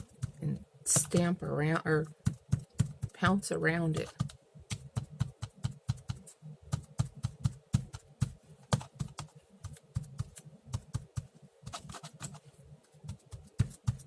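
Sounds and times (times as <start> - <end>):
ink applicator tapping on paper: 2.2 - 12.4, 13.0 - 14.0.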